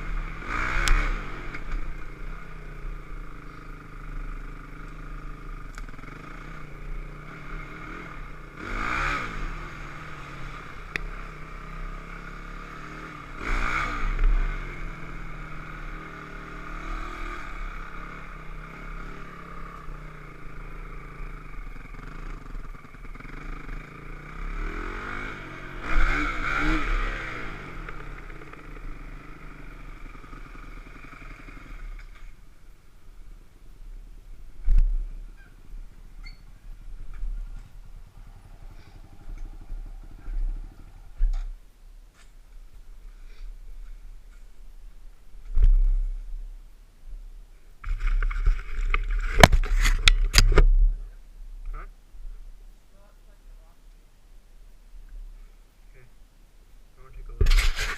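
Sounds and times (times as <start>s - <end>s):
dirt bike engine revving: 0.0s - 32.4s.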